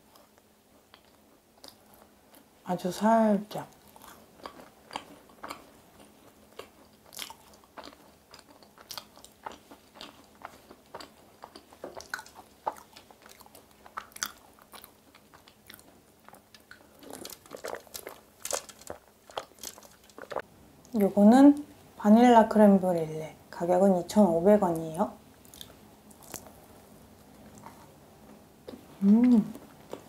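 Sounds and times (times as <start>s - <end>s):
chewing macaron mouth sounds: 3.7s - 20.5s, 25.4s - 26.6s.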